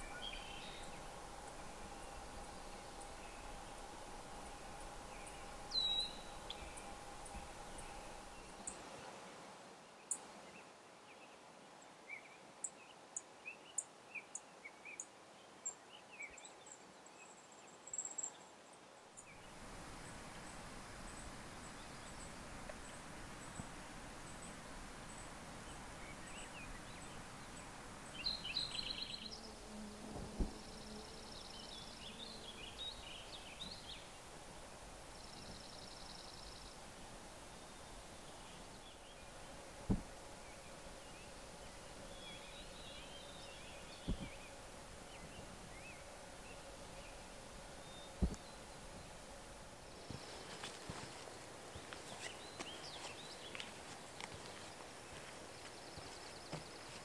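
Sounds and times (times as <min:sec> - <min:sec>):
small birds chirping and trilling: 0:00.0 - 0:09.1, 0:19.2 - 0:57.0
steady background hiss: 0:00.0 - 0:57.0
low thump: 0:39.9 - 0:40.1.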